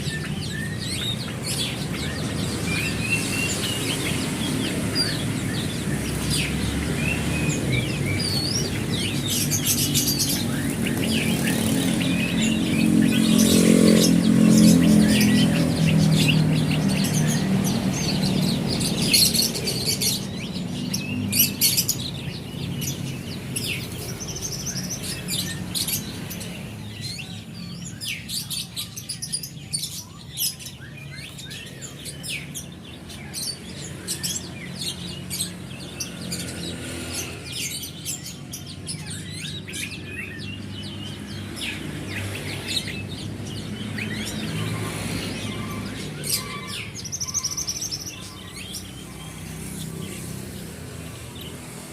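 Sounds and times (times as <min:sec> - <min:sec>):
songbirds chirping and whistling: 0:00.0 - 0:51.9.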